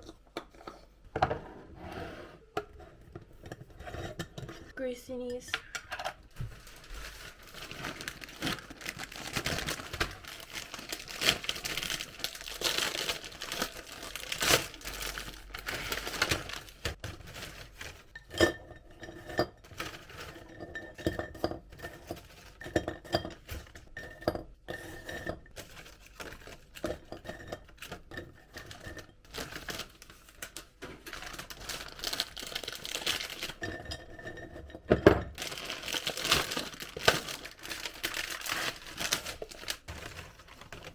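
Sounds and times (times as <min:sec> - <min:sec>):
containers clinking and knocking: 0:05.3 - 0:40.9
plastic packaging crinkling: 0:06.2 - 0:18.1, 0:29.3 - 0:33.6, 0:35.4 - 0:40.9.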